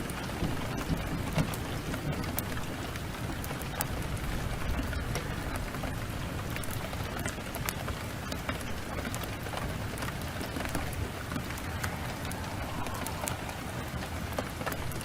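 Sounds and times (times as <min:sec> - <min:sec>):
heavy rain falling: 0:00.0 - 0:15.0
wood fire crackling: 0:00.0 - 0:15.0
low rumble: 0:10.4 - 0:15.0.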